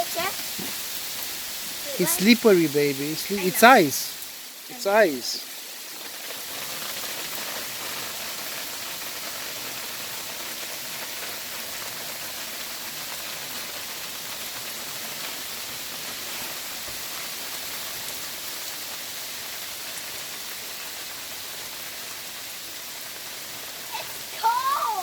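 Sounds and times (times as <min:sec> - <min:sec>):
hail falling heavily: 0:00.0 - 0:25.0.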